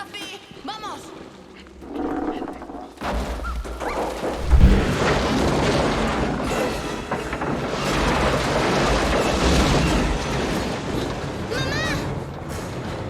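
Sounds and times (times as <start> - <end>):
crackling debris noise: 3.9 - 11.3
deep continuous rumble: 4.3 - 5.5
heavy boom: 4.4 - 5.3.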